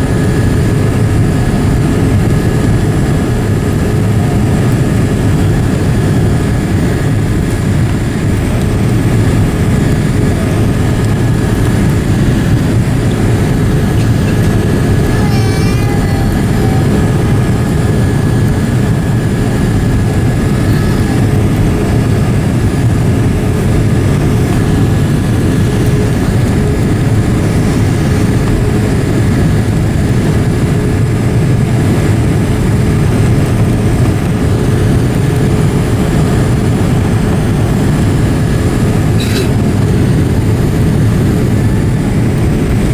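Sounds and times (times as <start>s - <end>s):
low rumble of aircraft engines: 0.0s - 42.9s
faint whining tones: 8.6s - 29.2s.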